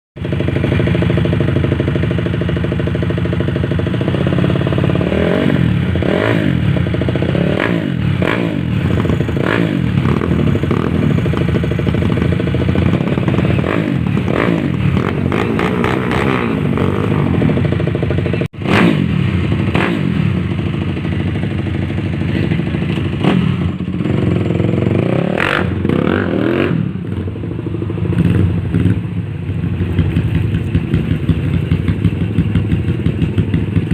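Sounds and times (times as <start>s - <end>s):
motorcycle engine revving: 0.2s - 33.9s.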